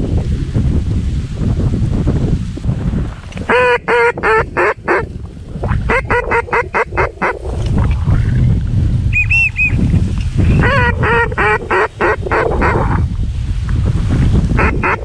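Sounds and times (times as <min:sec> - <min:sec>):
wind rumble on microphone: 0:00.0 - 0:15.0
ducks quacking: 0:03.5 - 0:05.1, 0:05.8 - 0:07.4, 0:10.6 - 0:13.0, 0:14.6 - 0:15.0.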